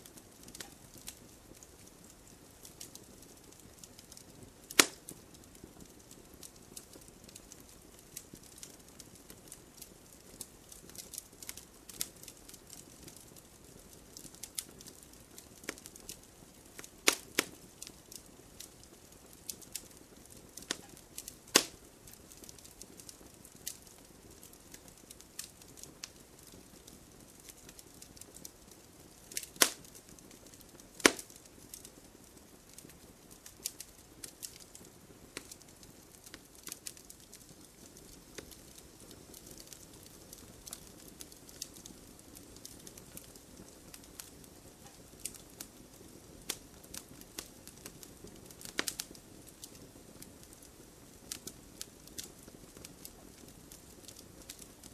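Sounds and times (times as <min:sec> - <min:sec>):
wood fire crackling: 0:00.0 - 0:54.9
wood popping: 0:21.5 - 0:21.7, 0:31.0 - 0:31.3.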